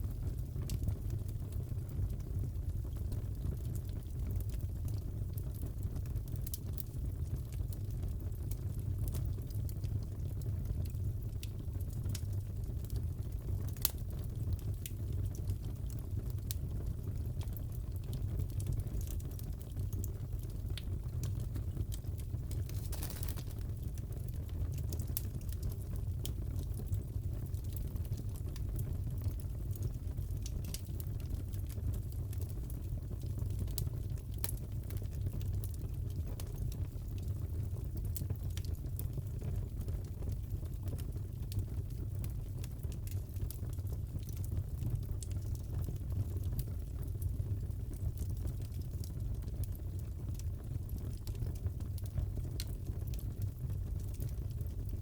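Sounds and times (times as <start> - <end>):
wood fire crackling: 0.1 - 55.0
sharp pops from fire: 21.9 - 24.2.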